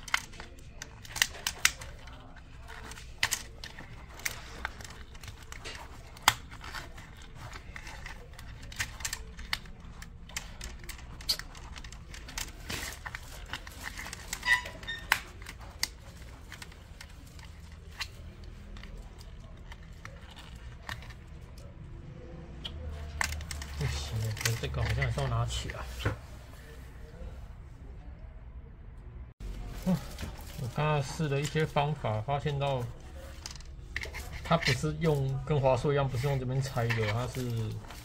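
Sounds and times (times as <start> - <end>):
plastic laptop housing clicking: 0.0 - 21.2.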